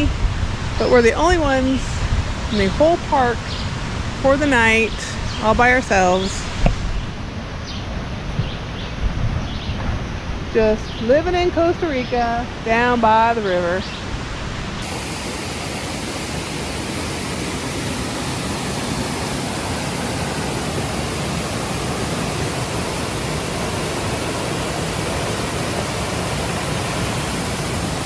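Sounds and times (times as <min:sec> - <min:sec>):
river rushing: 0:12.4 - 0:28.0.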